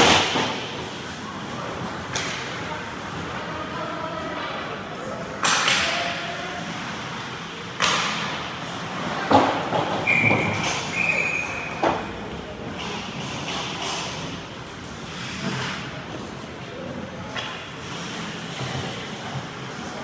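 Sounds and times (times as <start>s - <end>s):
puck and sticks knocking boards: 0.0s - 0.8s, 5.4s - 6.0s, 7.8s - 8.4s, 9.2s - 10.8s.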